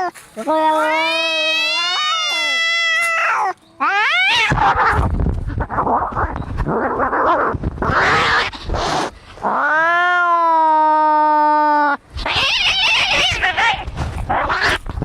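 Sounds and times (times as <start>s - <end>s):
cat yowling: 0.0s - 5.0s, 7.0s - 8.6s, 9.5s - 14.8s
cats screeching: 0.0s - 15.0s
cats hissing and spitting: 4.3s - 9.6s, 12.2s - 15.0s.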